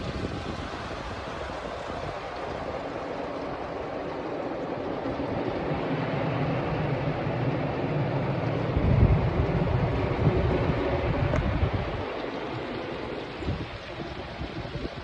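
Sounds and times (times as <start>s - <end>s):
water spray drumming on car: 0.0s - 15.0s
deep rumble: 4.6s - 15.0s.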